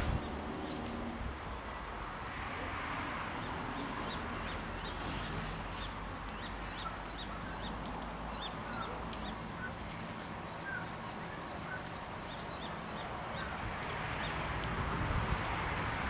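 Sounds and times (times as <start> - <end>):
birds chirping: 3.4 - 14.4.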